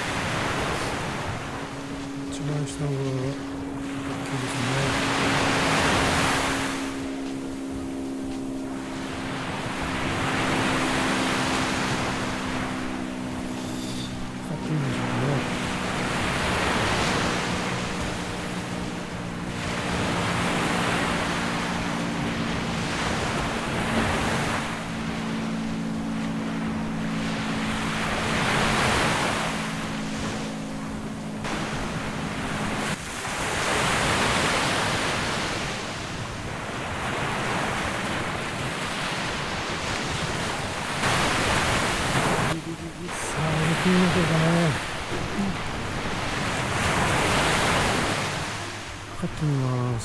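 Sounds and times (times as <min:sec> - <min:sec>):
steady low hum: 0:00.0 - 0:50.0
surf breaking: 0:31.4 - 0:50.0.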